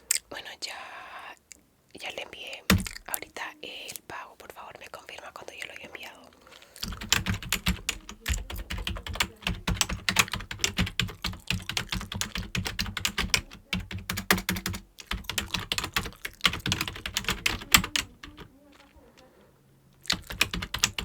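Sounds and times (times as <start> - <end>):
fast typing on computer keyboard: 2.7 - 3.0, 6.8 - 19.0, 20.0 - 21.0.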